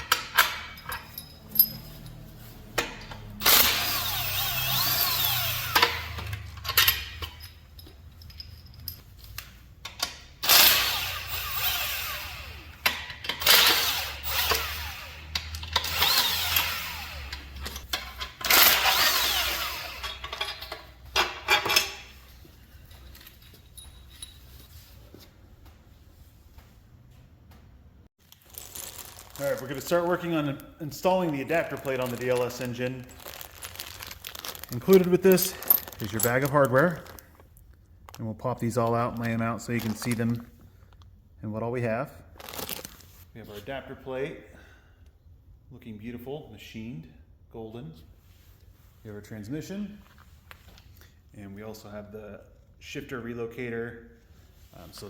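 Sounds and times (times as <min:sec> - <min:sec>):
metallic clicks and clinks: 0:00.0 - 0:10.6, 0:31.7 - 0:37.2
power tool motor whirring: 0:03.4 - 0:06.2, 0:10.4 - 0:12.7, 0:13.4 - 0:17.6, 0:18.4 - 0:20.2.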